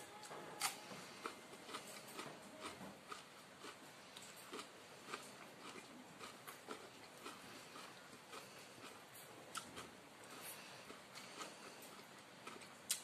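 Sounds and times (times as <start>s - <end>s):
person chewing food: 0.1s - 13.0s.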